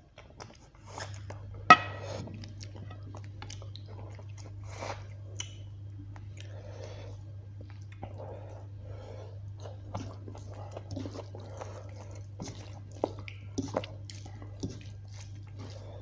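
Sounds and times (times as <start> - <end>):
steady low hum: 0.0 - 16.0
chewing and biting food: 2.4 - 6.6, 7.5 - 16.0.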